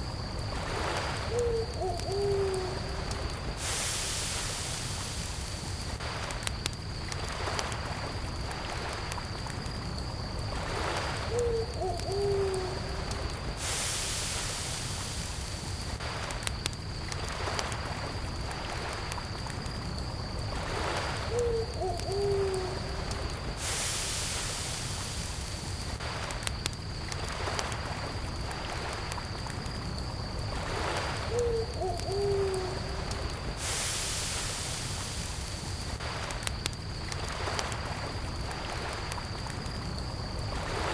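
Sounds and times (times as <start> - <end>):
campfire crackling: 0.0 - 40.9
crickets chirping: 0.0 - 40.9
owl hooting: 1.3 - 2.8, 11.3 - 12.8, 21.3 - 22.8, 31.3 - 32.9.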